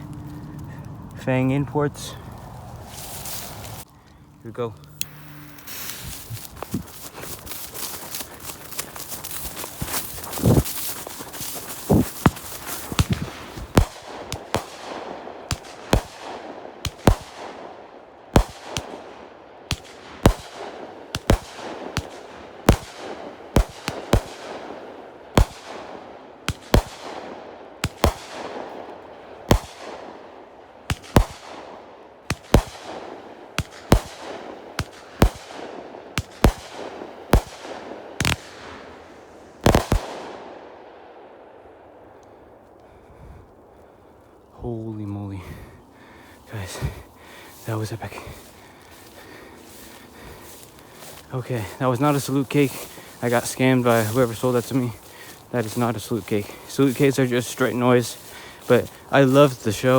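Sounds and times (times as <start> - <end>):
firework bangs with hiss: 9.0 - 17.6, 18.3 - 19.0, 19.7 - 28.7, 29.4 - 30.1, 30.9 - 31.6, 32.2 - 40.4.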